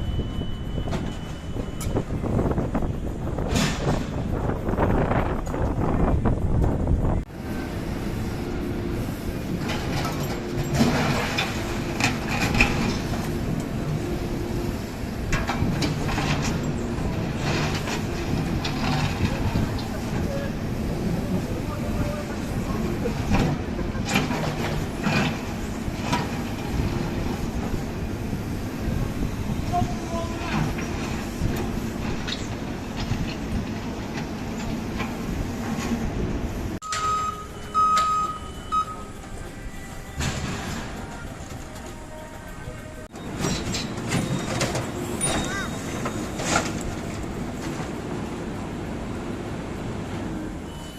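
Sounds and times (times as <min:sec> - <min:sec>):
reversing alarm beeping: 0:00.0 - 0:02.3, 0:36.8 - 0:40.6, 0:43.2 - 0:46.6, 0:50.6 - 0:50.9
diesel engine running: 0:00.0 - 0:50.9.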